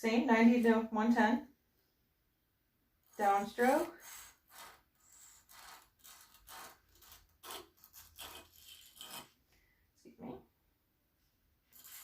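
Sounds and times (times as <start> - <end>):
blade scraping sharpening stone: 3.7 - 9.3, 11.7 - 12.0.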